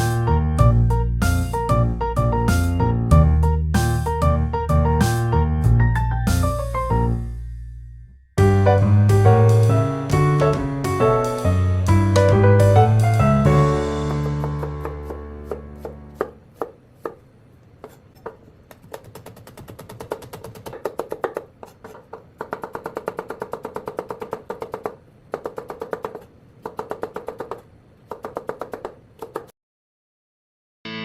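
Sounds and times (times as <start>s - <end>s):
knife chopping on cutting board: 14.1s - 17.2s, 17.8s - 29.5s.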